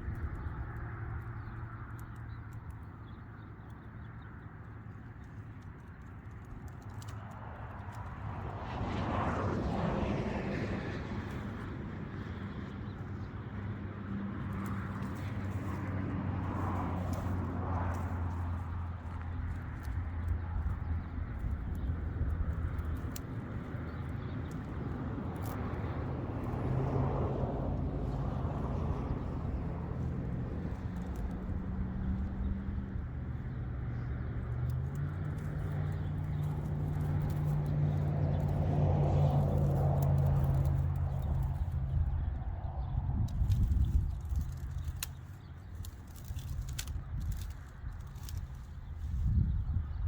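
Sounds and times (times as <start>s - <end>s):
faint clicks and rattles: 0.0s - 8.2s, 43.2s - 49.4s
faint clicks: 4.9s - 8.0s.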